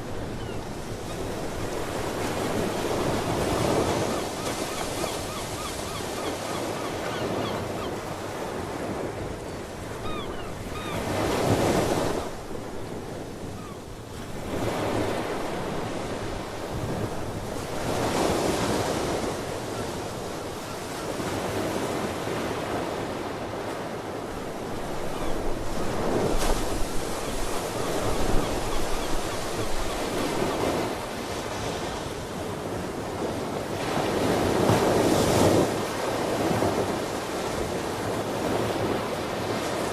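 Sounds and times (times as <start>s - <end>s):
ocean waves breaking: 0.0s - 39.9s
faint seabird calls: 0.1s - 1.5s, 3.4s - 8.2s, 9.5s - 11.5s, 13.5s - 13.9s, 27.1s - 30.6s.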